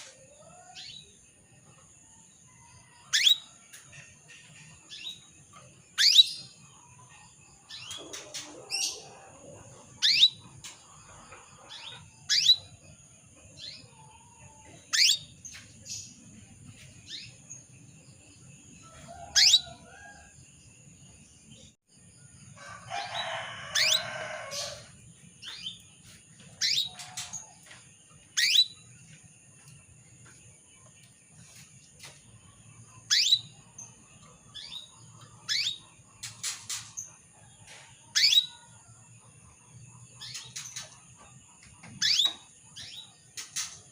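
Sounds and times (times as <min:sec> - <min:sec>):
canary chirping calls: 0:03.1 - 0:06.7, 0:07.7 - 0:12.9, 0:13.5 - 0:16.2, 0:18.9 - 0:20.1, 0:23.0 - 0:25.9, 0:26.5 - 0:28.9, 0:33.0 - 0:37.3, 0:38.1 - 0:38.6, 0:42.0 - 0:43.9.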